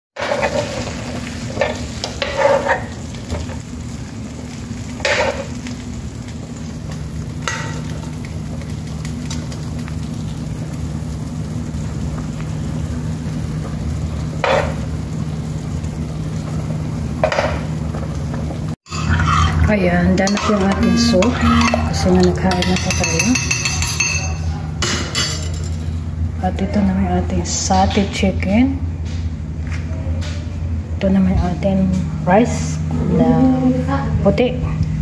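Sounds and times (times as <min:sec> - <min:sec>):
skewers sizzling in a pan: 0:00.2 - 0:17.9
low hum: 0:18.4 - 0:35.0.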